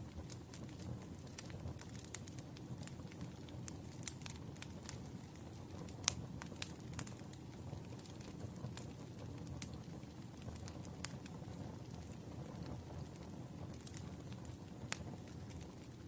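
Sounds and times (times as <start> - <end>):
firewood crackling and popping: 0.0 - 16.0
low rumble of fire: 0.0 - 16.0.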